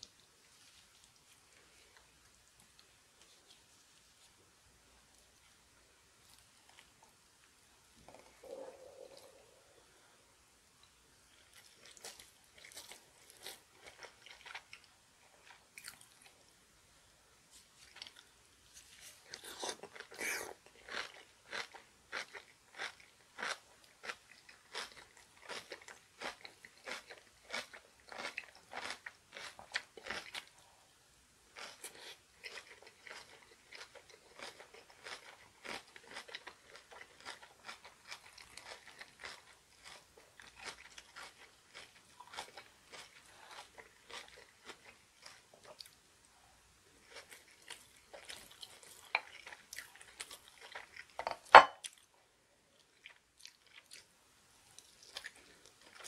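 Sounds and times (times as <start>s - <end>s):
crunchy food chewing: 11.3s - 16.5s, 17.8s - 30.8s, 31.5s - 46.1s, 46.9s - 52.1s, 52.7s - 54.1s, 54.7s - 56.0s.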